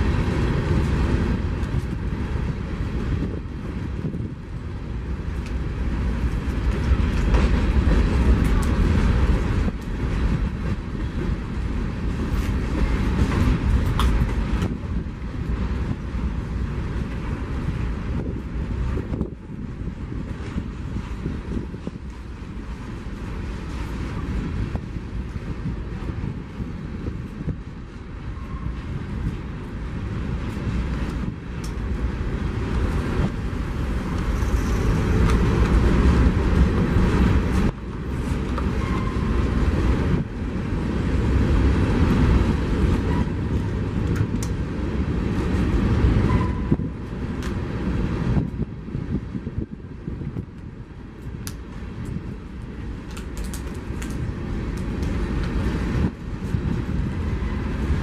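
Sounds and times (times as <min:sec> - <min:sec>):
train wheels rumbling on rail: 0:00.0 - 0:58.0
brief wheel squeals: 0:38.7 - 0:39.3, 0:46.3 - 0:46.8.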